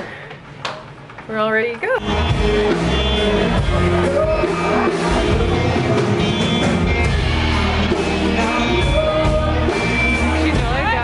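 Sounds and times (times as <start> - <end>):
live rock band playing: 2.0 - 11.0
person singing: 2.4 - 11.0.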